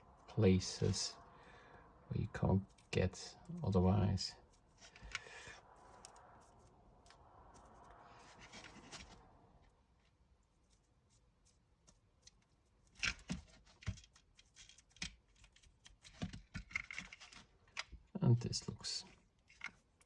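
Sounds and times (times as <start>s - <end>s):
brush scratchy rustle: 0.0s - 1.3s, 2.1s - 16.0s
small clicks and knocks: 11.8s - 18.1s, 19.4s - 20.0s.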